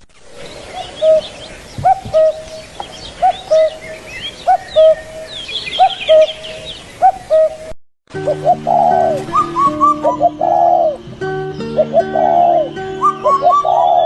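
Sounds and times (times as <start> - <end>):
high chirps of small birds: 0.4 - 7.7, 8.3 - 14.0
bird two-note call: 8.2 - 14.0.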